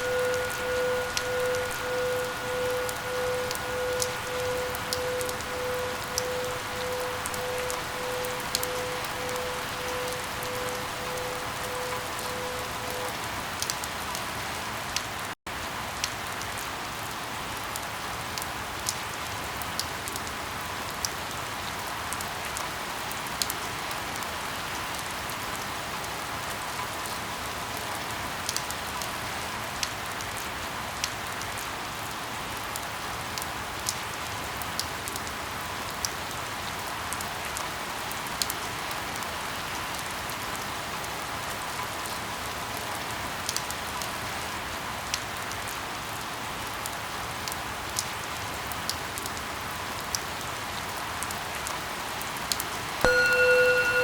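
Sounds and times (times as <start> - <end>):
raindrop impacts ticking: 0.0 - 13.8
steady rain falling: 0.0 - 54.0.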